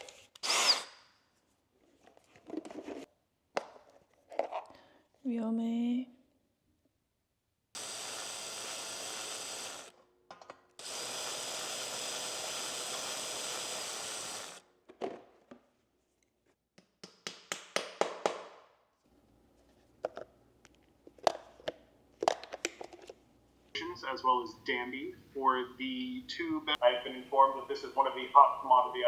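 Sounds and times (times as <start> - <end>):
small motor whirring: 0.4 - 0.9, 7.8 - 9.9, 10.8 - 14.6.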